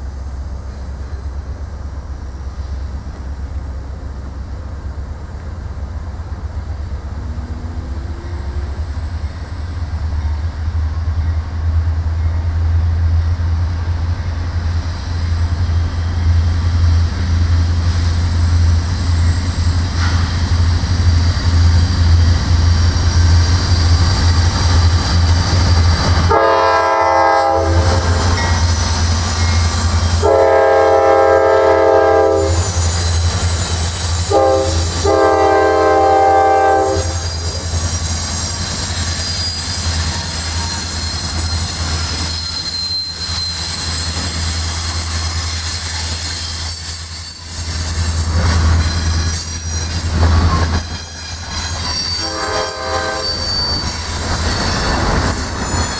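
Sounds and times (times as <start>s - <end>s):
train rumbling on tracks: 0.0s - 55.9s
faint high wheel squeal: 18.7s - 55.9s
locomotive air horn: 26.3s - 28.4s, 30.2s - 32.8s, 34.3s - 37.6s, 52.0s - 53.9s.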